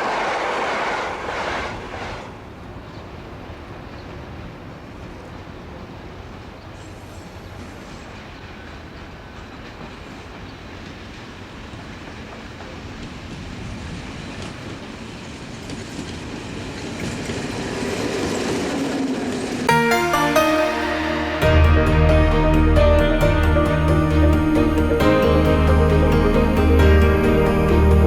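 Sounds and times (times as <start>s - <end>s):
train rumbling on rails: 0.0s - 19.7s.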